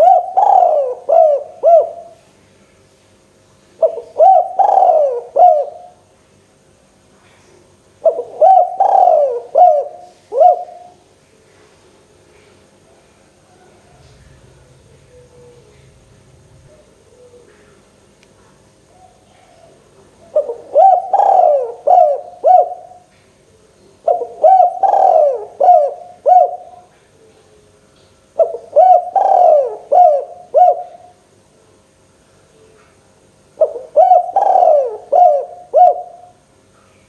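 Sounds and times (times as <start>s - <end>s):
dove cooing: 0.0s - 2.2s, 3.8s - 6.0s, 8.0s - 11.0s, 13.5s - 17.9s, 18.8s - 23.1s, 24.0s - 27.7s, 28.4s - 31.2s, 33.6s - 36.4s.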